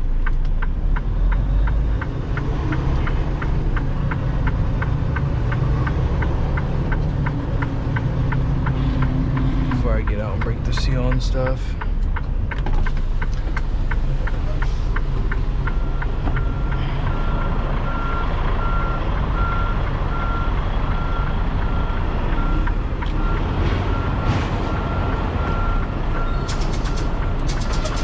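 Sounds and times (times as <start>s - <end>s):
diesel engine rumble: 0.0s - 28.0s
truck backup alarm beeping: 0.6s - 11.9s, 12.8s - 28.0s
fast regular ticking: 6.2s - 16.6s, 26.4s - 28.0s.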